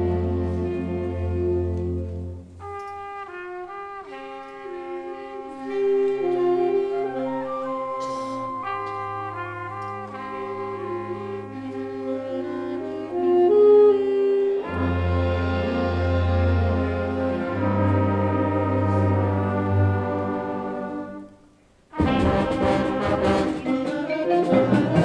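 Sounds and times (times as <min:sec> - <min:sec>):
concert band playing: 0:06.7 - 0:13.0, 0:21.9 - 0:25.0.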